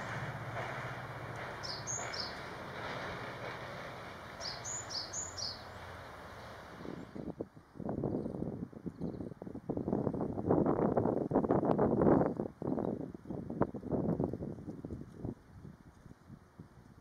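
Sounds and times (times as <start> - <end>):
low hum: 0.0 - 7.2
small bird chirping: 1.6 - 2.5, 4.4 - 6.0.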